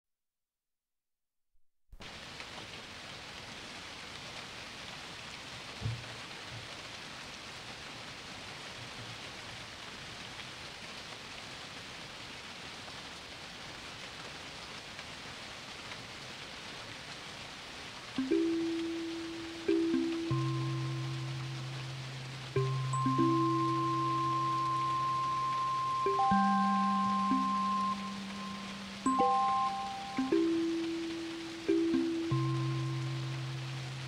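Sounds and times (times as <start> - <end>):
steady rain: 2.0 - 34.0.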